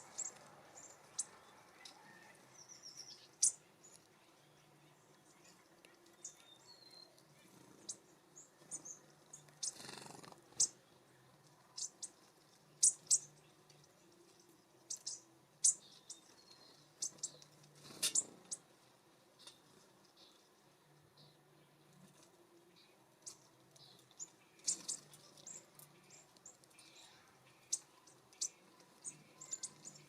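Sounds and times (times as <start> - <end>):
songbirds chip calls: 0.0 - 4.0, 5.2 - 10.8, 11.6 - 18.7, 22.8 - 30.0.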